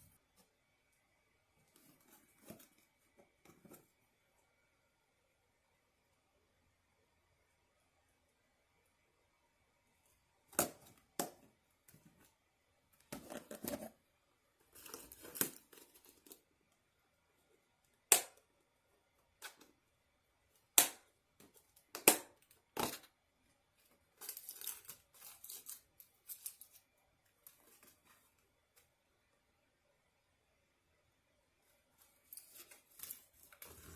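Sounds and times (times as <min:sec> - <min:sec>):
packaging crinkling and rustling: 0:24.2 - 0:26.9.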